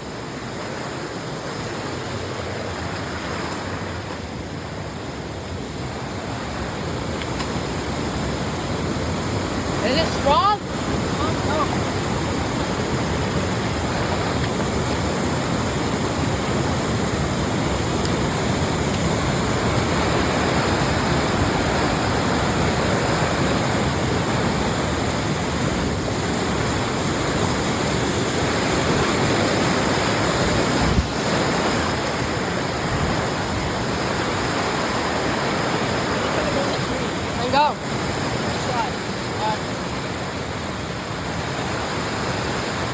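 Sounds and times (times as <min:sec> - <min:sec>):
waterfall roaring: 0:00.0 - 0:42.9.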